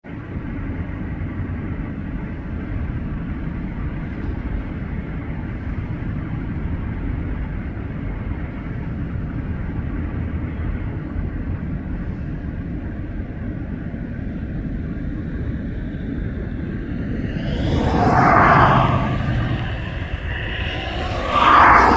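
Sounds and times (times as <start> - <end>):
jet engines and airflow in cabin: 16.9 - 21.9.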